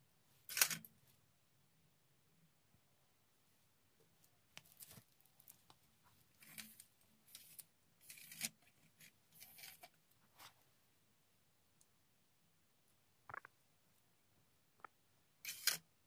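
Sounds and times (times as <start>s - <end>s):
faint scrapes and rustles: 4.1s - 10.8s, 15.4s - 15.9s.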